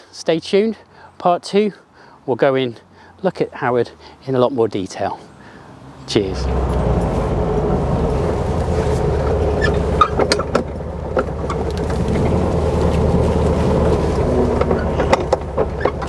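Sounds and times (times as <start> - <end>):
car engine running low: 5.2 - 16.0.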